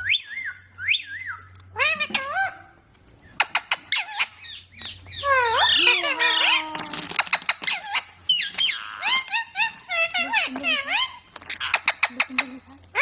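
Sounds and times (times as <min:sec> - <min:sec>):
baby parrots squawking: 0:03.4 - 0:13.0.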